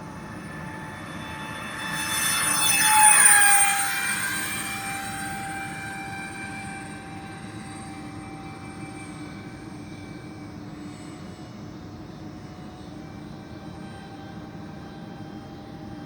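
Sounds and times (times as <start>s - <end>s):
model airplane fan whine: 0.0s - 11.4s.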